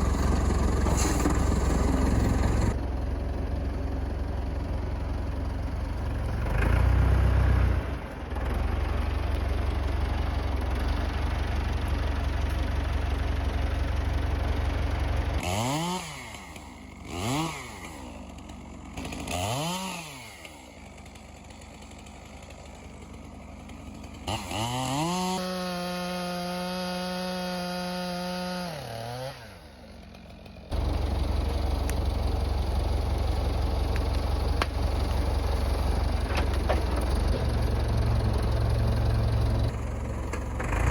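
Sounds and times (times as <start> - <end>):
chainsaw revving: 0.0 - 2.8, 14.2 - 40.9
tractor engine idling: 0.0 - 19.6, 20.5 - 24.7, 29.6 - 40.9.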